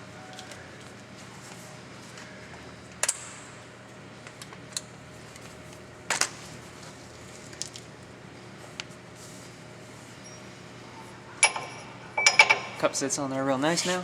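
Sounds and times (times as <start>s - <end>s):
metal tools clinking: 11.4s - 12.9s.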